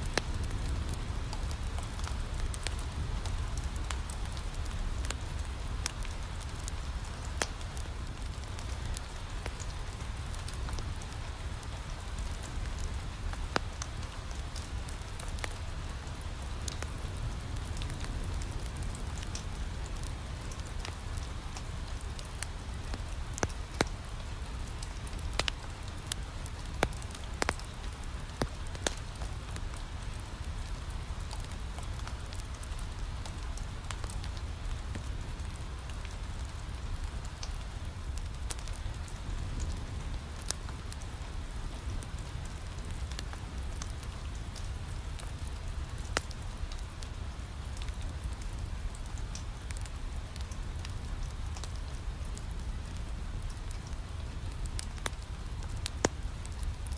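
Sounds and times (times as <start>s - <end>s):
rain pattering on window: 0.0s - 56.9s
wood fire crackling: 0.0s - 56.9s.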